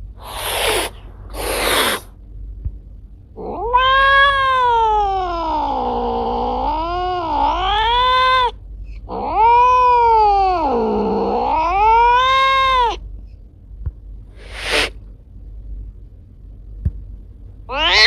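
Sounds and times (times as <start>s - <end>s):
cat hissing: 0.0s - 2.2s, 14.3s - 15.0s, 17.7s - 18.0s
cat yowling: 0.2s - 2.1s, 3.4s - 13.0s, 17.7s - 18.0s.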